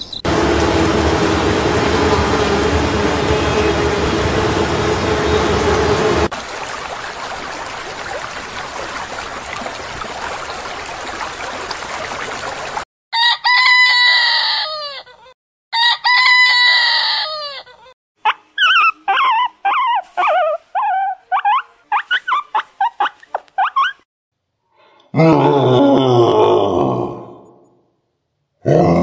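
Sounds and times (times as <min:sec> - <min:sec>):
steady rushing noise: 0:00.3 - 0:06.3
rooster crowing: 0:13.1 - 0:15.1, 0:15.7 - 0:17.7.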